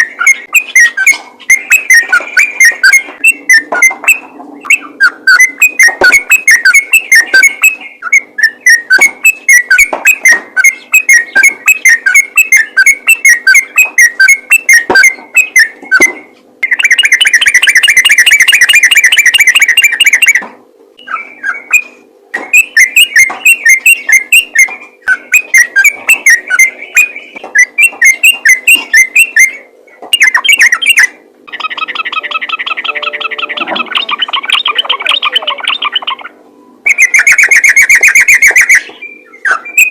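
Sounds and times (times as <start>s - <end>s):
bulbul chattering song: 0.0s - 39.9s
buzzy multi-tone sound: 32.1s - 35.7s.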